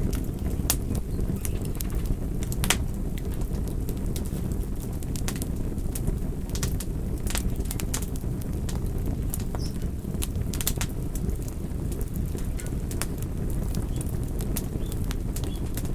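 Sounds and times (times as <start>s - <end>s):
flames rushing: 0.0s - 15.9s
wood crackling and popping: 0.0s - 15.9s.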